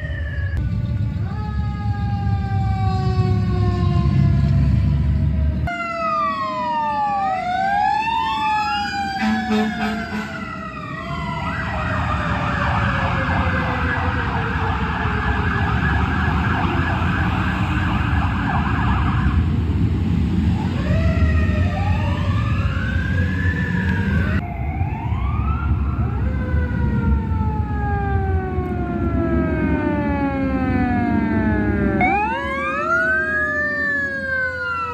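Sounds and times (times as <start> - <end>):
fire truck sirens wailing: 0.0 - 34.9
truck engines rumbling: 0.0 - 34.9.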